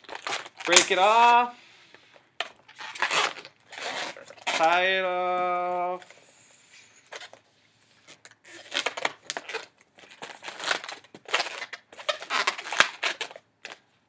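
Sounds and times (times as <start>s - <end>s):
balloons squeaking and rubbing: 0.0s - 13.8s.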